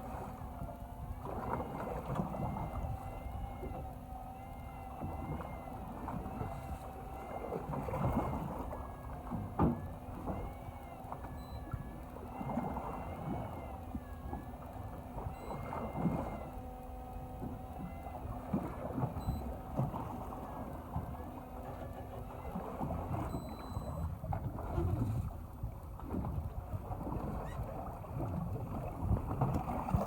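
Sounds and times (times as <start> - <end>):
boat engine humming: 0.0 - 30.0
water noise: 0.0 - 30.0
wind on microphone: 22.5 - 30.0.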